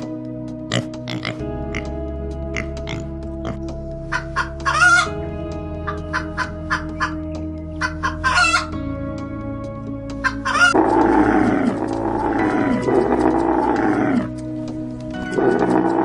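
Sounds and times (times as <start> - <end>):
soft background music: 0.0 - 16.0
rooster clucking and calling: 7.8 - 8.7
camel groaning: 10.7 - 16.0.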